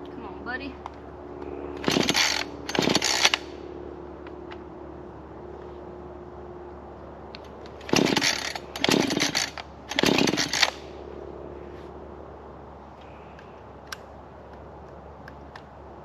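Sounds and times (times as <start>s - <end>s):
chainsaw idling and revving: 1.8s - 3.6s, 7.7s - 11.0s.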